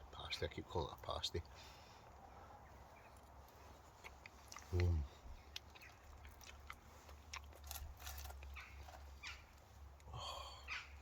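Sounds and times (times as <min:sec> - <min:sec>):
person chewing food: 0:03.1 - 0:09.2.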